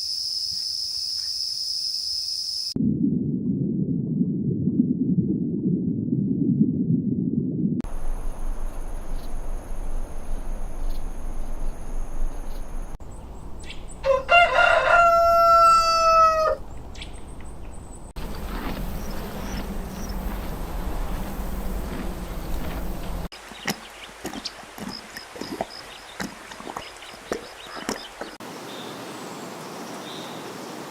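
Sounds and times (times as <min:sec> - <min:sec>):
low rumbling noise: 0:02.8 - 0:14.0, 0:17.4 - 0:23.3
steady hiss with high whine: 0:07.9 - 0:12.9
rooster crowing: 0:14.0 - 0:16.6.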